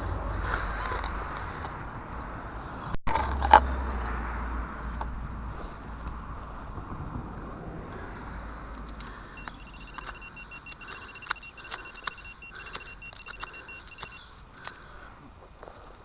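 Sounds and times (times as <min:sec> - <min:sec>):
metal detector beeping: 0:09.4 - 0:14.4.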